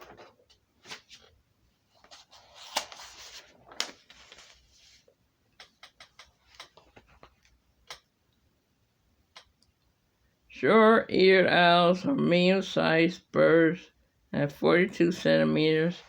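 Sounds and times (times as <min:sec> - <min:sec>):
soft rustling handling noises: 0:00.0 - 0:05.2, 0:06.0 - 0:07.6.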